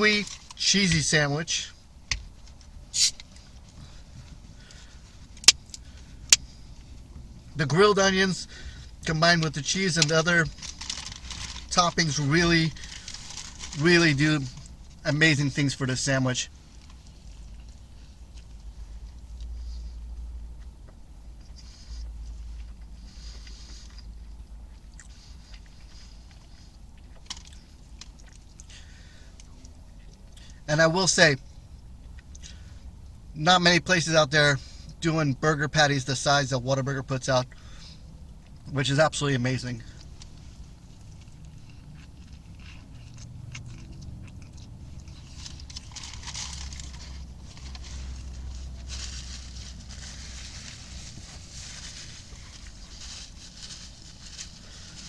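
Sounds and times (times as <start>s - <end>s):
steady low rumble: 0.0s - 30.7s, 36.9s - 55.0s
steady low hum: 0.0s - 55.0s
person chewing a burger: 1.8s - 7.6s, 8.4s - 15.0s, 16.5s - 30.7s, 31.4s - 33.3s, 37.4s - 38.6s, 39.9s - 55.0s
person chewing: 21.4s - 30.6s, 40.0s - 48.8s
rustling: 39.9s - 55.0s.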